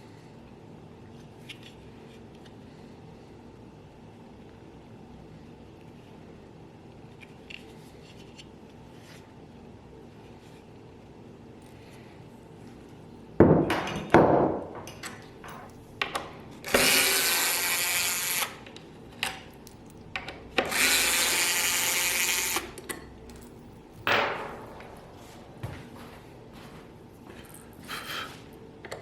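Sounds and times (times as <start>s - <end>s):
power tool running: 16.6s - 18.6s, 20.6s - 22.8s
sharp knocks: 24.1s - 25.7s.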